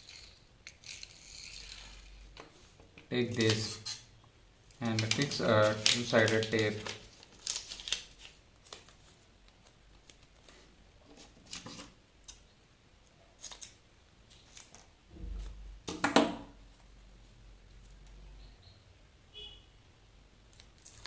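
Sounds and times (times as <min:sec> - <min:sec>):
tape rustling: 0:04.7 - 0:12.4, 0:20.5 - 0:21.0.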